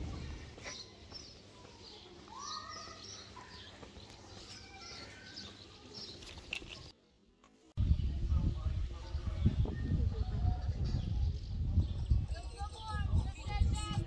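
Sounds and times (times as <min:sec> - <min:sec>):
small birds chirping: 0:00.0 - 0:07.2.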